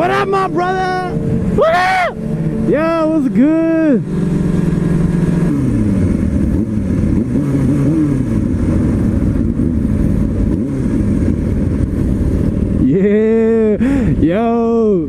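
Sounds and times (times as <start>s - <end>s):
motorcycle engine revving: 0.0s - 14.2s.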